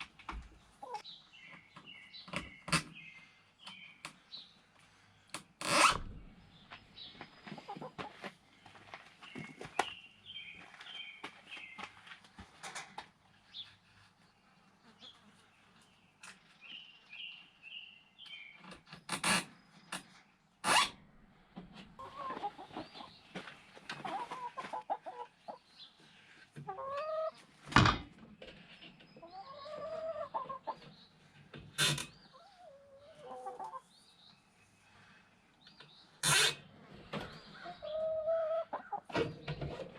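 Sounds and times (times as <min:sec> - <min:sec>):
chickens clucking: 0:00.0 - 0:04.2, 0:07.0 - 0:16.5, 0:21.6 - 0:34.4, 0:35.7 - 0:39.9.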